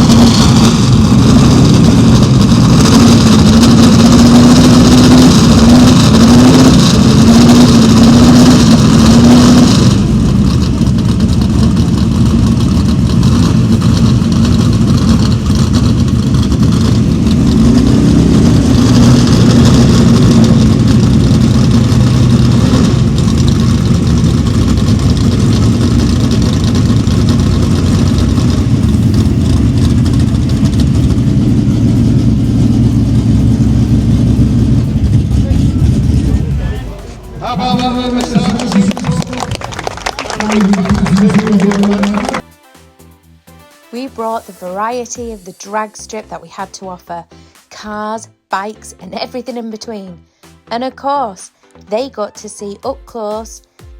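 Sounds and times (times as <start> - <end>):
car engines idling: 0.0 - 42.4
drag car engines revving: 0.0 - 42.4.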